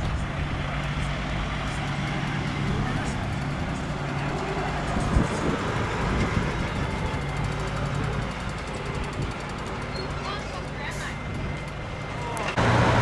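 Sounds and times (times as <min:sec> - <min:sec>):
heavy truck engine running: 0:00.0 - 0:13.0
road noise: 0:00.0 - 0:13.0.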